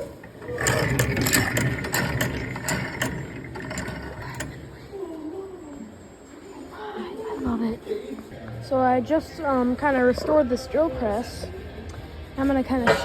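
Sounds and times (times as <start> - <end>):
drill press gears rumbling: 0.0 - 4.9
ratchet feed clicking: 0.4 - 4.8.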